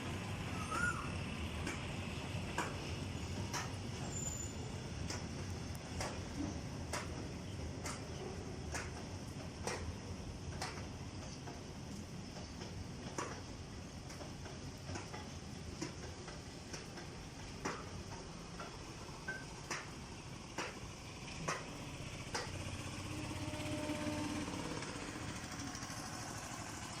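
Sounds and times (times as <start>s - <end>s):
wheels clicking over rail joint: 0.1s - 27.0s
low drone: 22.0s - 27.0s.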